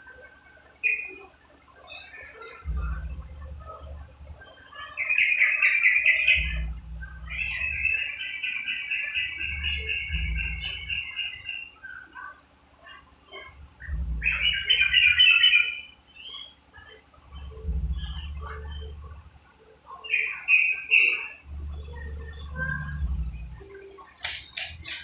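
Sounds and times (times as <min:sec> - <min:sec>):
bird chattering song: 0:00.1 - 0:25.0
low rumble: 0:02.6 - 0:04.4, 0:06.4 - 0:07.8, 0:13.4 - 0:14.9, 0:17.3 - 0:19.3, 0:21.4 - 0:23.7.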